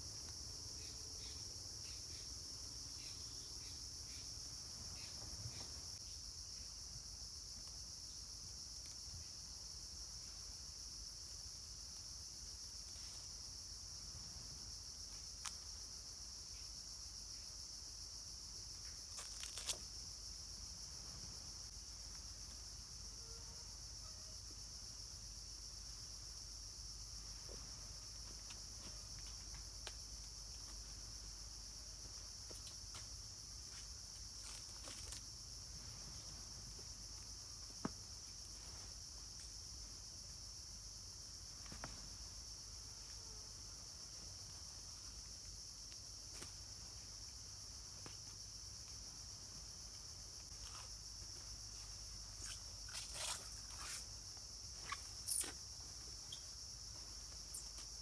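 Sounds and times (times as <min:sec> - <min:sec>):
insects droning: 0:00.0 - 0:58.0
rustles and crackles: 0:19.2 - 0:20.0, 0:32.5 - 0:39.5, 0:50.4 - 0:58.0.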